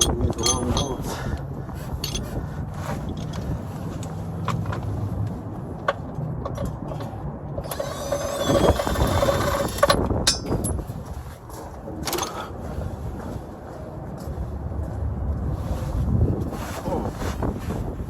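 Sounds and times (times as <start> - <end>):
metal tools clicking and knocking: 0.0 - 1.3, 2.0 - 2.3, 9.8 - 10.8
wind rumble on microphone: 0.0 - 18.0.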